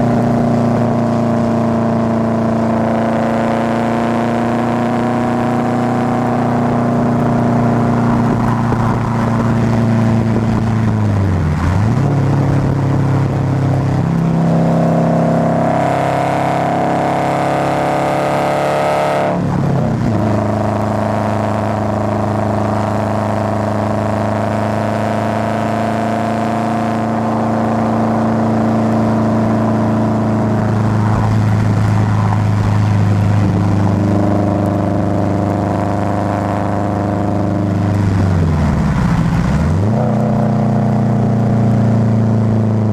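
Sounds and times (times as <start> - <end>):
car engine while driving: 0.0 - 42.9.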